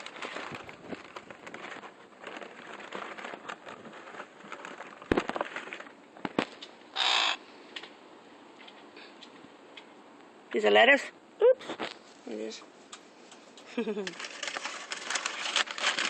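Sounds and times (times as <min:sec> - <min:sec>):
soft rustling: 0:00.0 - 0:06.8, 0:11.6 - 0:16.0
crow cawing: 0:06.9 - 0:07.5.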